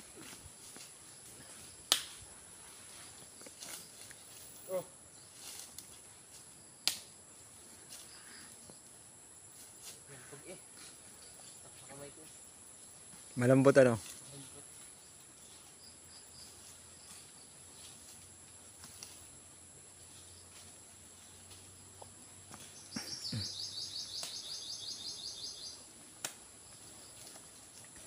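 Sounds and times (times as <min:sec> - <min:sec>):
high insect drone: 0:00.0 - 0:28.0
bird trilling high chirps: 0:22.8 - 0:25.8.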